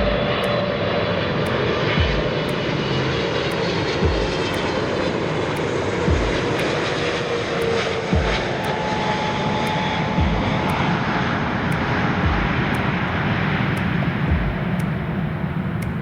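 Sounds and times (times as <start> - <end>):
airliner engines roaring: 0.0 - 16.0
low thumps: 2.0 - 2.4, 4.0 - 4.6, 6.1 - 6.7, 8.2 - 8.6, 10.2 - 10.8, 12.2 - 12.8, 14.3 - 14.9.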